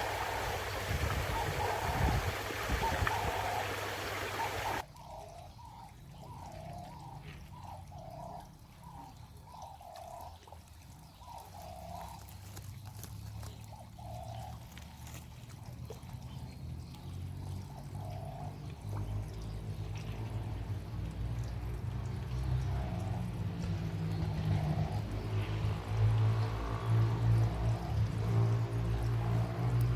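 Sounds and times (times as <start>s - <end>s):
animal calls: 0.0s - 4.8s
water trickling into pond: 0.0s - 29.9s.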